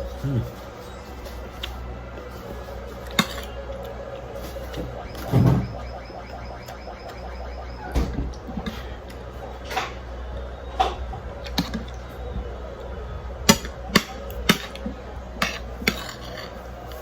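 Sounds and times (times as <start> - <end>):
utensils clinking against dishes: 0.0 - 5.7, 13.5 - 17.0.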